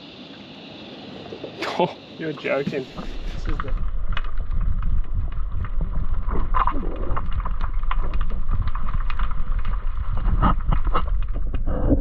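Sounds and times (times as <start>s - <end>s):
wind buffeting microphone: 2.7s - 12.0s
sharp clicks and ticks: 3.4s - 11.7s.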